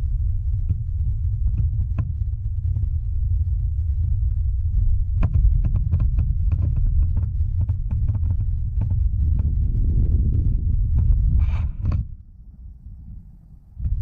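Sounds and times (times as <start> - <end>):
wind buffeting microphone: 0.0 - 14.0
crackling clicks: 5.2 - 9.8.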